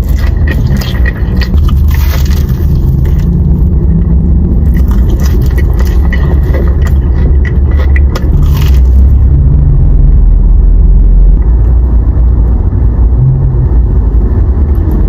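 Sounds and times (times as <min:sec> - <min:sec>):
crunchy bite into food: 0:00.0 - 0:03.5, 0:04.6 - 0:09.1
loud low rumble: 0:00.0 - 0:15.0.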